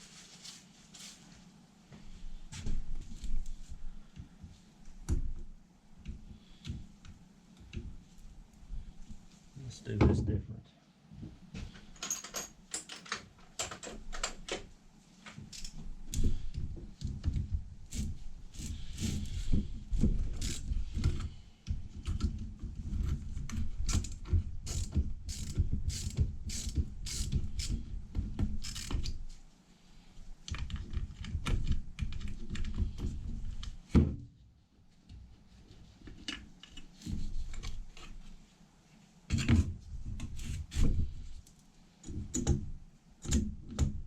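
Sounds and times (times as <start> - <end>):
hand tool ratcheting: 23.9 - 27.8, 28.6 - 29.2.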